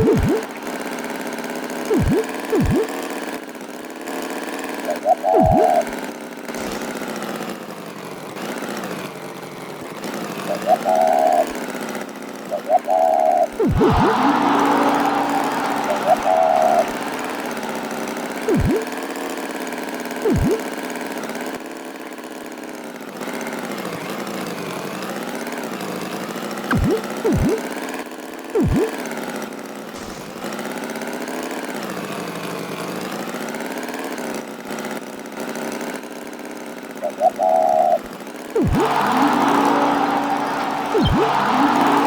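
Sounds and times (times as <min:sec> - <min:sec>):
motor running: 0:01.9 - 0:03.0, 0:06.6 - 0:07.2, 0:12.9 - 0:18.9, 0:38.5 - 0:42.0.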